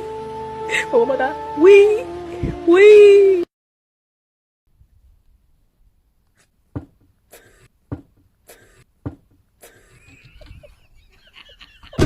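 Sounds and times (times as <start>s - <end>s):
sharp knocks: 6.7s - 9.5s.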